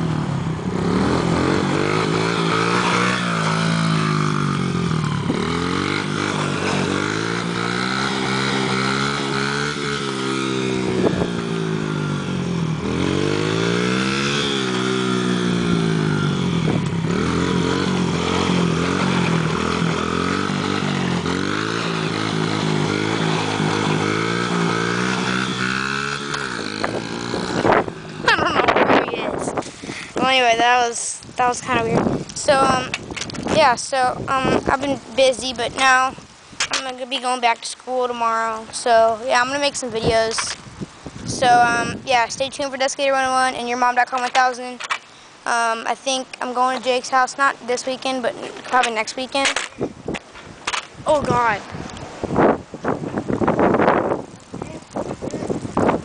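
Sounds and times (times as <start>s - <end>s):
dirt bike engine revving: 0.0s - 30.6s.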